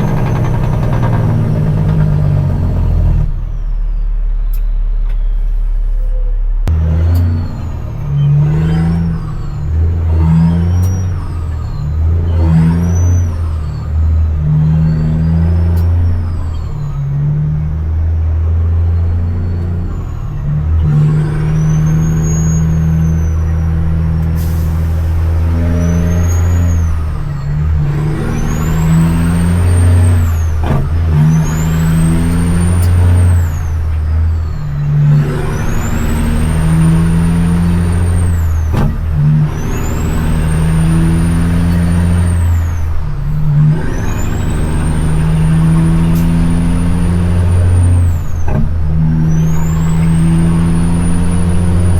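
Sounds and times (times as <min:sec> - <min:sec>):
diesel truck engine pulling hard: 0:00.0 - 0:51.9.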